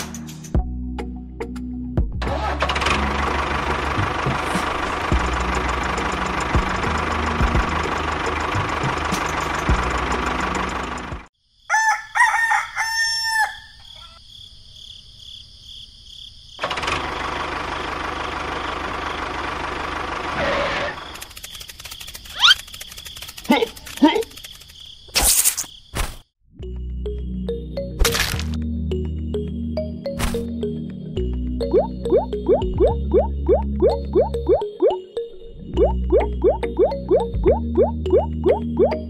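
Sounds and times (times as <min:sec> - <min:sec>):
engine-like running sound: 0:02.2 - 0:11.3, 0:16.6 - 0:24.7
rooster crowing: 0:11.6 - 0:14.2.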